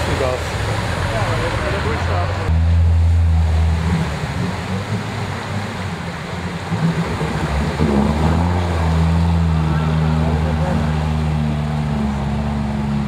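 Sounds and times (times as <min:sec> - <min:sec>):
car engine at low revs: 0:00.0 - 0:13.0.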